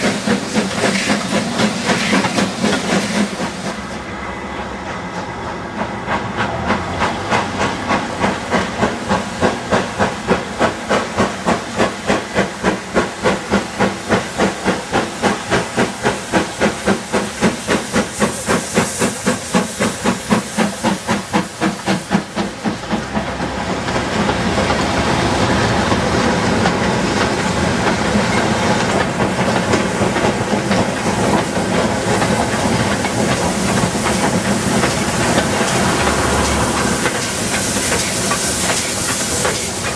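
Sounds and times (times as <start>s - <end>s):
steam hissing rush: 0.0s - 39.9s
steam locomotive exhaust beating: 0.0s - 39.9s.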